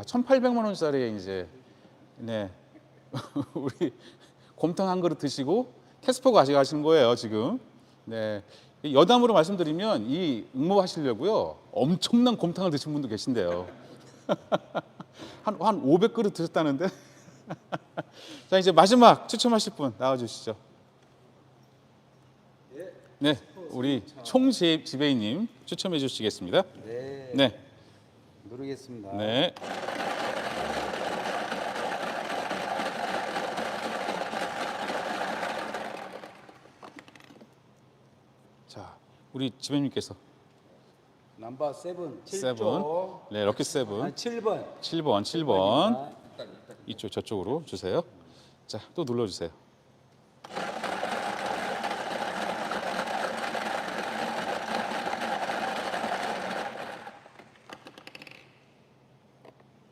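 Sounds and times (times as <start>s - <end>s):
prize draw machine whirring: 29.6s - 37.0s, 50.4s - 57.6s.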